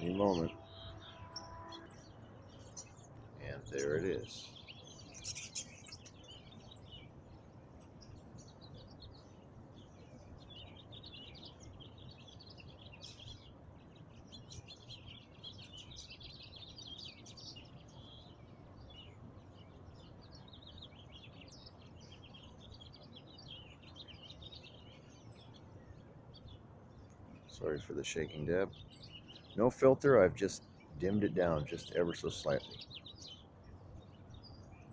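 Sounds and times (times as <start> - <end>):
low outdoor rumble: 0.0 - 10.9
faint birds chirping: 0.0 - 34.9.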